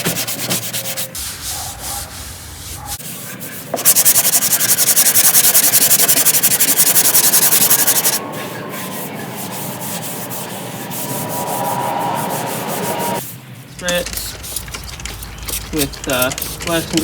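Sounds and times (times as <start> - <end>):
sanding scraping strokes: 0.0 - 17.0
faint whine: 8.2 - 13.8.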